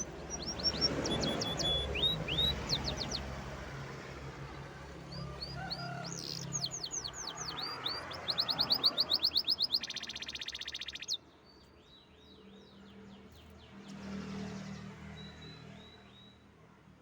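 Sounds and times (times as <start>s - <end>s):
canary singing: 0.0s - 3.8s, 4.4s - 11.2s.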